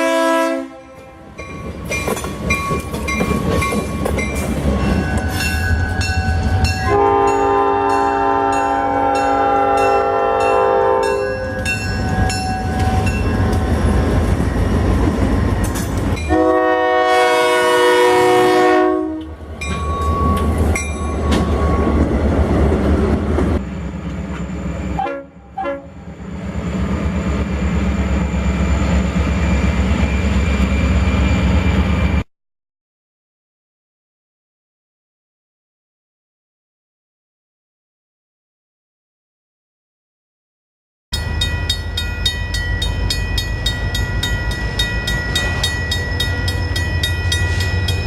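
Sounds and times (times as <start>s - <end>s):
locomotive air horn: 0.0s - 1.3s, 6.8s - 11.7s, 16.3s - 19.3s, 25.0s - 26.0s
crossing bell ringing: 0.7s - 17.4s, 19.6s - 22.1s, 41.1s - 48.0s
wheels clacking on rail: 1.0s - 16.6s, 19.2s - 25.0s, 41.2s - 48.0s.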